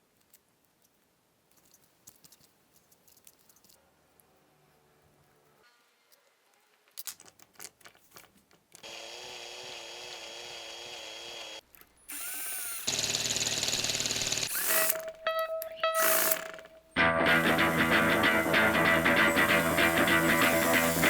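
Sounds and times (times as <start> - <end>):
electric drill running jackhammer: 8.8 - 14.9, 17.2 - 21.0
drill clicks: 8.8 - 15.2.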